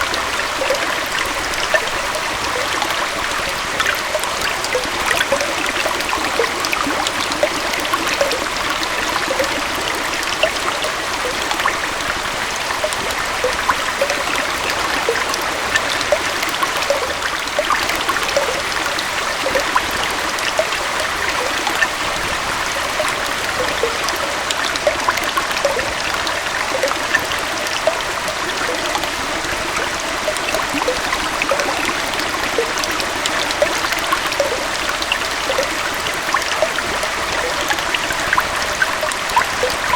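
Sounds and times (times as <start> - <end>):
small waterfall and stream: 0.0 - 39.9.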